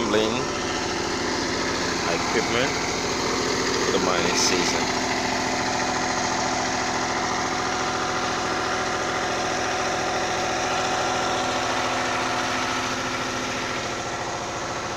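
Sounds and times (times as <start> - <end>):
diesel generator running: 0.0 - 14.9.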